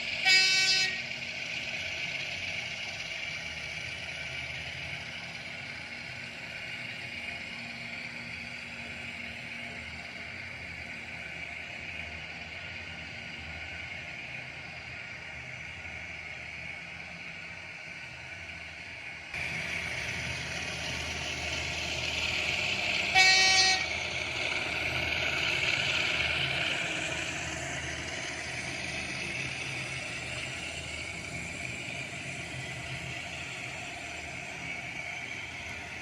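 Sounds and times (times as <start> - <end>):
model locomotive engine running: 0.0 - 36.0
locomotive horn blast: 0.2 - 1.0, 23.1 - 23.9.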